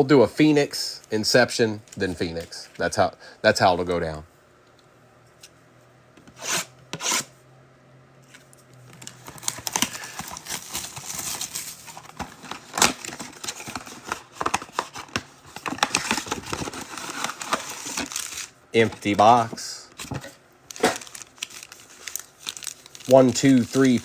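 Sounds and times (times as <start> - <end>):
shrink-wrap and cardboard crinkling: 8.9 - 24.0.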